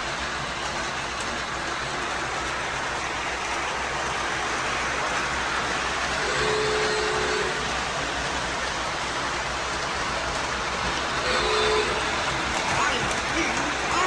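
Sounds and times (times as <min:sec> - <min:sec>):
rain on a roof: 0:00.0 - 0:14.0.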